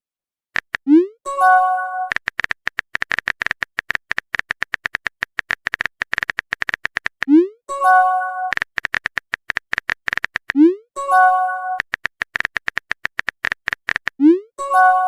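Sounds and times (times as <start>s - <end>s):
keyboard taps: 0.6s - 0.9s, 2.1s - 7.3s, 8.5s - 10.6s, 11.8s - 14.2s
message chime: 7.7s - 8.5s, 11.0s - 11.8s.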